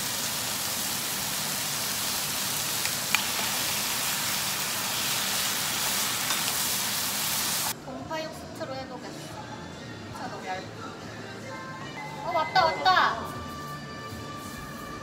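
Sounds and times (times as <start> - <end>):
food sizzling in a hot pan: 0.0 - 7.8.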